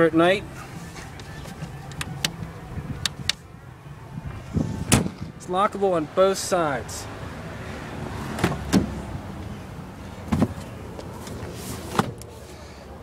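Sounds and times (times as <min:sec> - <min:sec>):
truck bed hardware clicks: 0:01.1 - 0:03.4.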